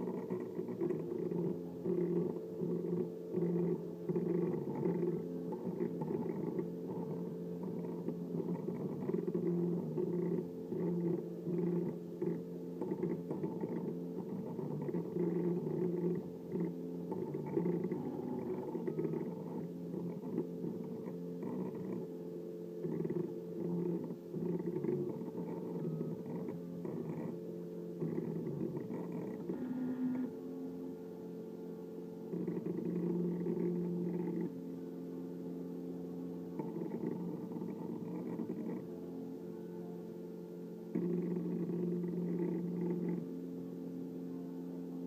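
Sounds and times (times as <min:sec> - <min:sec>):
printer stepper motors whining: 0:00.0 - 0:44.1.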